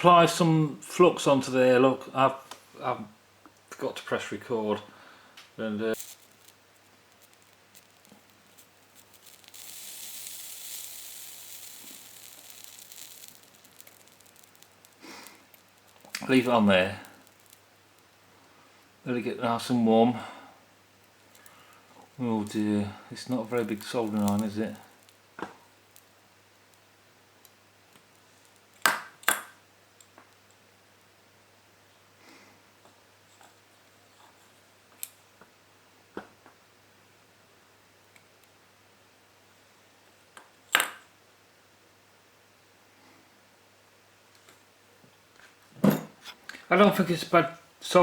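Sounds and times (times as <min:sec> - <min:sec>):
faint steady hum: 0:00.0 - 0:48.0
soldering flux sizzling: 0:05.5 - 0:31.4
small metal parts clicking: 0:06.0 - 0:16.4.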